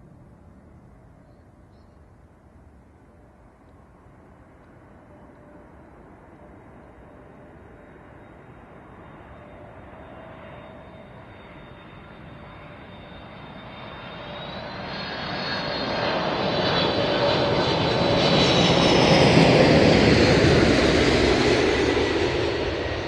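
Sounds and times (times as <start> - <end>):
jet engines whining: 5.4 - 23.0.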